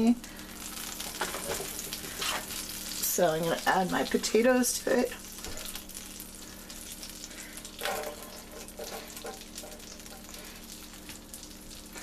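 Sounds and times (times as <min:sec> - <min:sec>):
potatoes sizzling in a skillet: 0:00.0 - 0:12.0.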